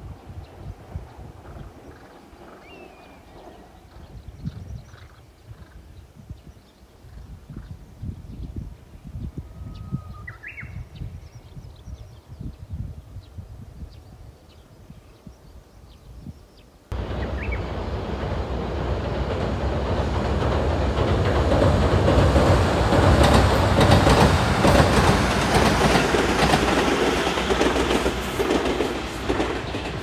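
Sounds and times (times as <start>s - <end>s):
faint bird chirps: 9.2s - 12.4s
electric train passing: 16.9s - 30.0s.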